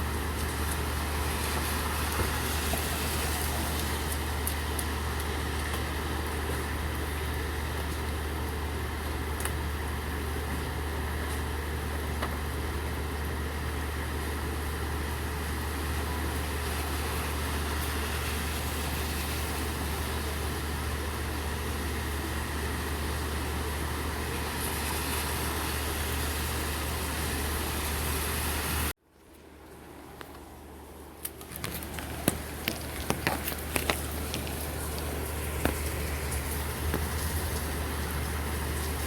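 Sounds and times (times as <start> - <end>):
steady rain hiss: 0.0 - 28.9, 30.5 - 39.0
large engine idling: 32.4 - 39.0.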